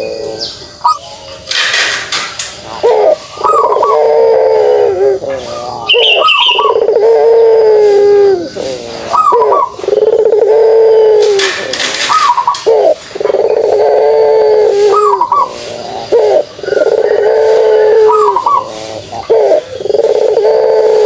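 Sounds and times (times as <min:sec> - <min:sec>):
dove cooing: 0:00.0 - 0:01.2, 0:02.6 - 0:21.0
high chirp: 0:05.2 - 0:06.9.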